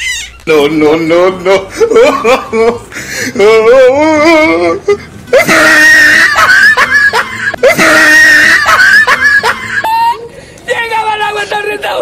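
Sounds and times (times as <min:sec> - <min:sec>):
wavering wailing cry: 0:00.0 - 0:00.5, 0:03.4 - 0:10.3.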